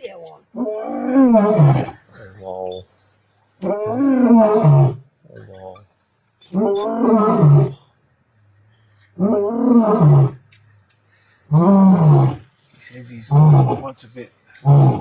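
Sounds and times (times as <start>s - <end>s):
lion roaring: 0.5s - 2.8s, 3.6s - 5.8s, 6.5s - 7.9s, 9.1s - 10.4s, 11.5s - 12.5s, 13.3s - 13.9s, 14.6s - 15.0s
lion grunt: 0.7s - 2.8s, 3.6s - 5.9s.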